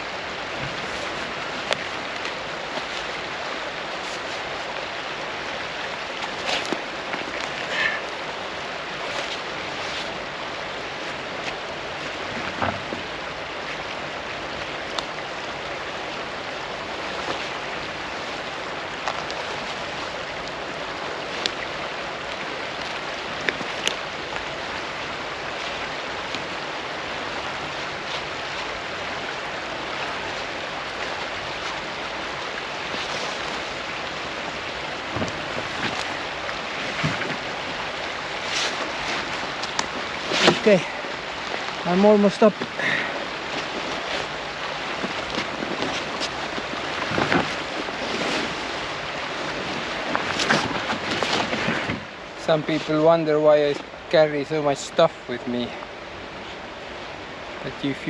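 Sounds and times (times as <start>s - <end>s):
river water rushing: 0.0s - 58.0s
knocks and scrapes: 35.1s - 37.5s, 38.4s - 40.8s, 45.0s - 48.9s, 49.5s - 53.0s.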